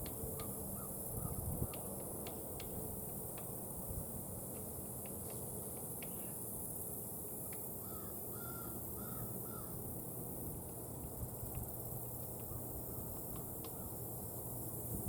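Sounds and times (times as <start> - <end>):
woodpecker tapping on nut: 1.6 - 3.5, 5.0 - 6.2, 13.2 - 13.9.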